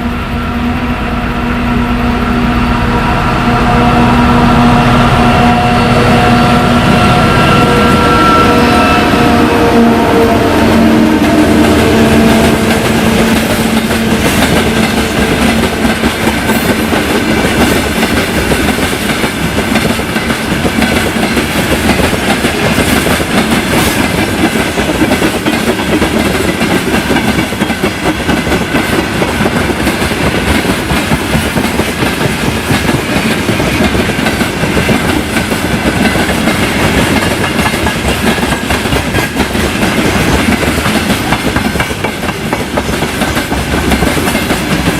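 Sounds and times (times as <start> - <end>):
diesel locomotive engine: 0.0 - 44.9
train wheels clattering: 10.8 - 44.9.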